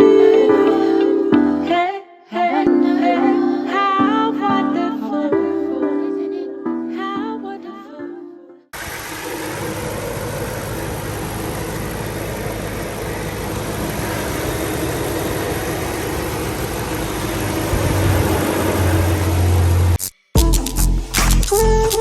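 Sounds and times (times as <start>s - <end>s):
car engine running: 8.8s - 20.0s.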